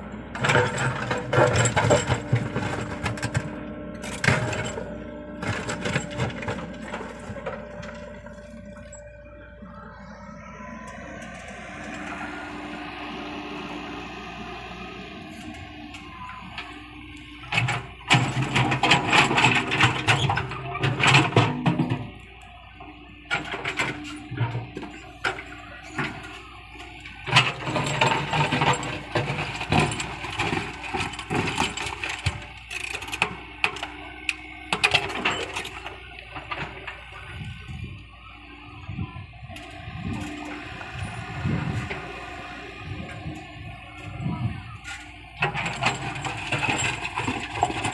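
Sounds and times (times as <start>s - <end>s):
excavator engine under load: 0.0s - 47.9s
machine clanks and knocks: 0.4s - 8.1s, 17.4s - 22.2s, 27.2s - 37.0s, 45.4s - 47.9s.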